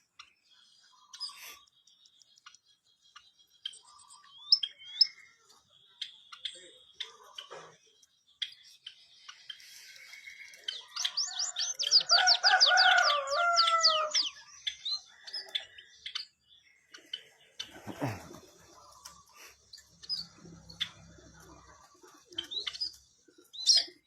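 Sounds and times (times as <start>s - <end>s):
short bird chirps and clicks: 1.1s - 11.3s
wavering bird call: 10.1s - 14.4s.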